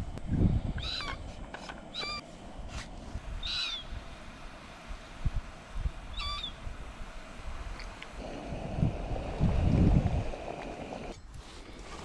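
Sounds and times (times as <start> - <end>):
bird calling: 0.8 - 2.3, 3.4 - 4.0, 6.1 - 6.6.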